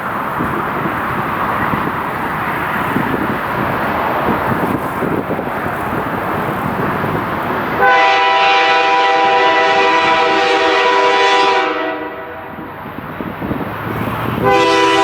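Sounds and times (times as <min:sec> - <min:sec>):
freight train rumbling on rails: 0:00.0 - 0:15.0
train horn blast: 0:07.8 - 0:12.6, 0:14.4 - 0:15.0.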